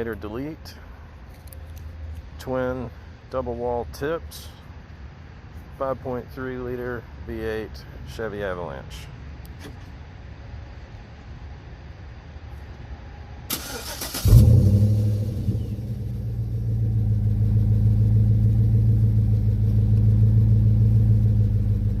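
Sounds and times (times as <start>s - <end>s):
engine starting and idling: 13.5s - 16.8s.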